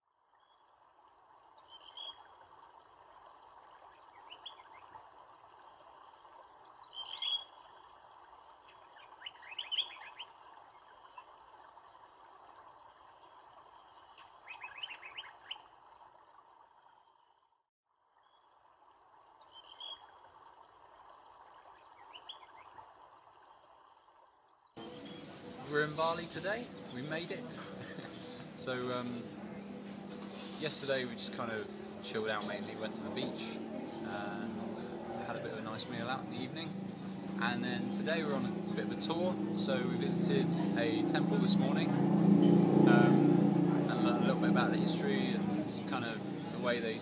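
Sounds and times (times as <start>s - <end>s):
birds chirping and trilling: 1.6s - 2.3s, 4.1s - 5.0s, 6.8s - 7.8s, 8.6s - 11.2s, 13.8s - 15.7s, 19.5s - 20.0s, 21.9s - 22.8s, 24.8s - 43.3s.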